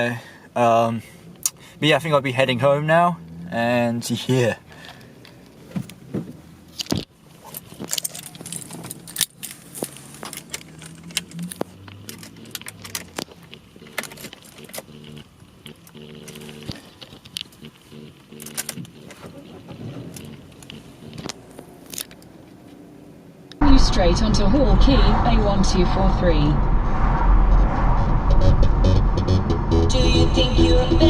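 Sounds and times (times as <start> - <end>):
keys jangling: 7.4 - 11.4.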